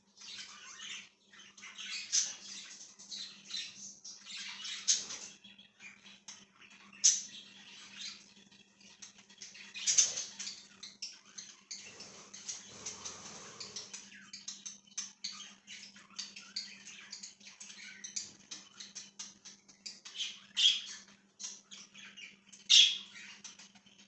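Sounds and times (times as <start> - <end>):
budgerigars chirping: 0.2 - 24.0
bird squawks: 21.8 - 23.6.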